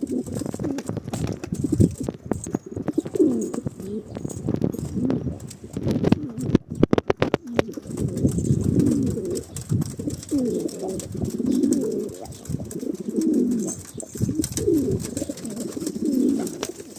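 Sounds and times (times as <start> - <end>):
pigeons cooing: 0.0 - 16.9.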